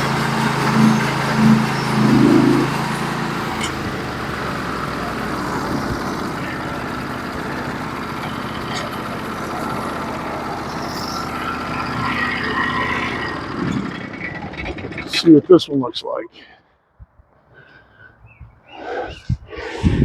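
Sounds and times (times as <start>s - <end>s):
sawmill engine and blade cutting log: 0.0s - 15.4s.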